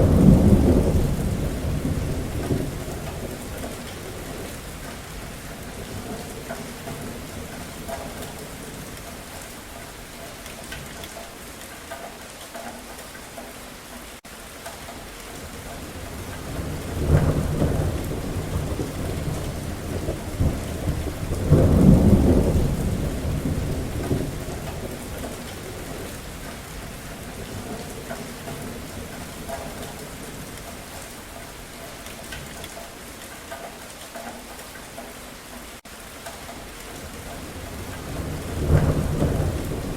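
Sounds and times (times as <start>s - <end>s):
thunder rumbling: 0.0s - 9.4s, 15.3s - 31.1s, 36.9s - 39.9s
steady rain falling: 0.0s - 39.9s.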